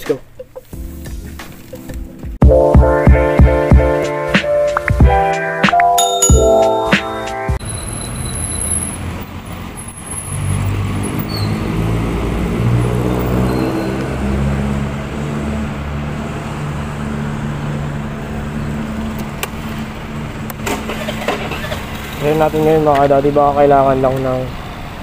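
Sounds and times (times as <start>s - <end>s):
wind and road noise: 7.6s - 25.0s.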